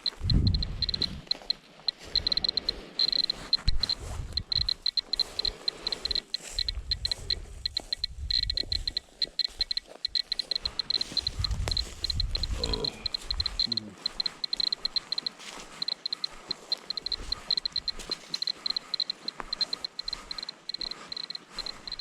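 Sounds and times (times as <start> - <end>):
scattered thumps: 0.0 - 1.4
geiger counter beeping: 0.0 - 22.0.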